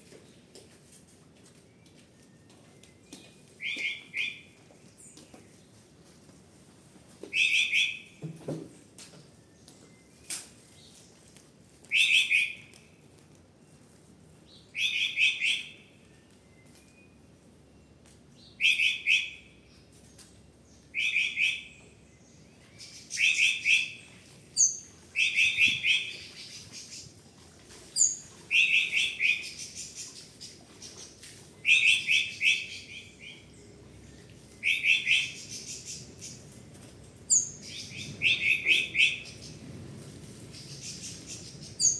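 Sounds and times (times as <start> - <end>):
thin high bird calls: 28.0 - 33.5, 34.6 - 36.4
songbird trilled song: 37.3 - 39.6.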